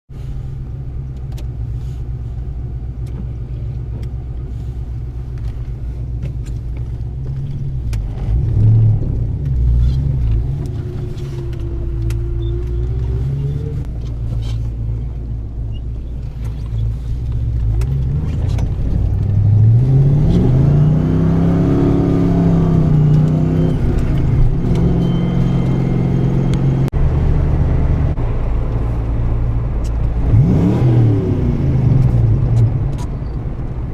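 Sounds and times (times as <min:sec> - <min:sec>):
car engine revving: 0:16.4 - 0:33.1.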